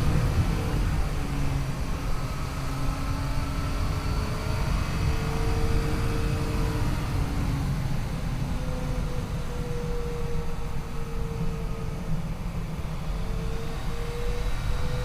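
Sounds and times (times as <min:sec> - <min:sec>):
wind noise: 0:00.0 - 0:15.0.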